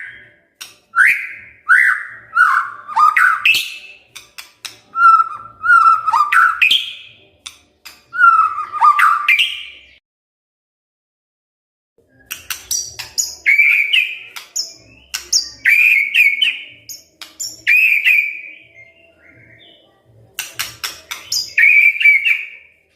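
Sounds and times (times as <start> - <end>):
bird singing whistled notes: 0.0 - 4.0, 5.0 - 7.2, 8.1 - 10.0, 12.0 - 20.0, 21.1 - 22.7.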